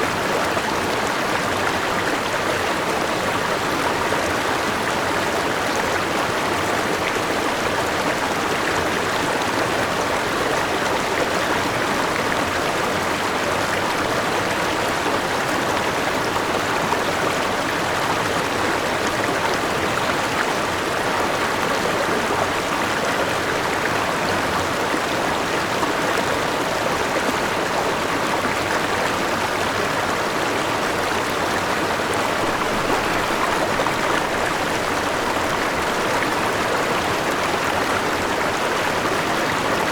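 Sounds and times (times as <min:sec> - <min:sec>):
river rushing: 0:22.3 - 0:39.9.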